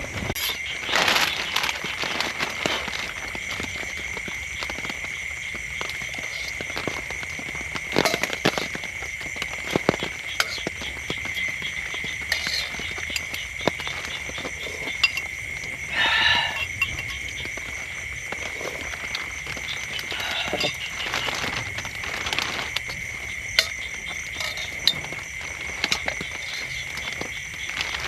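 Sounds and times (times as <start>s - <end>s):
high-pitched animal chorus: 9.3s - 28.0s.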